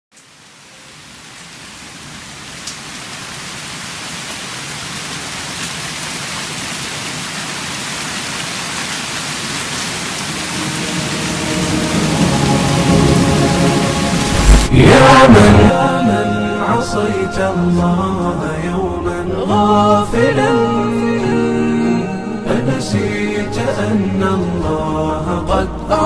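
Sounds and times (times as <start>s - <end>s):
rain hissing: 0.1s - 15.7s
musical drone: 10.3s - 18.9s.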